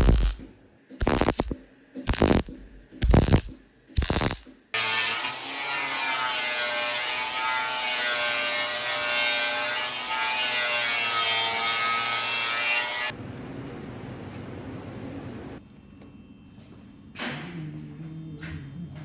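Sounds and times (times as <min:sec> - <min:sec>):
power tool rasping: 0:00.0 - 0:13.1.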